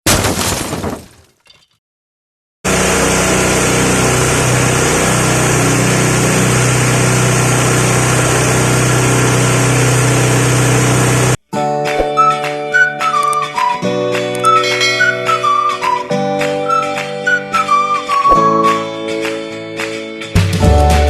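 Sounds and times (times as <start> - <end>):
grinding machine whirring: 2.7 - 11.4.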